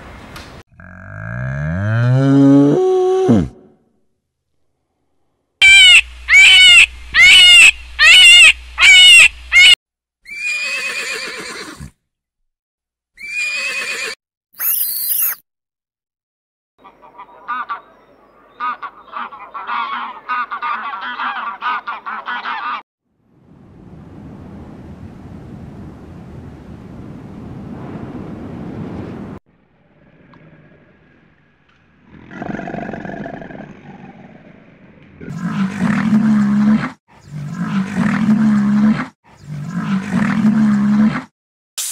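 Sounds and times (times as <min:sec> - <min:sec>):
high-pitched animal calls: 0:05.6 - 0:11.7
horse whinnying: 0:10.2 - 0:12.0, 0:13.2 - 0:14.2
rushing wind noise: 0:23.4 - 0:29.4
crocodile growling roar: 0:29.8 - 0:31.3, 0:32.0 - 0:41.2.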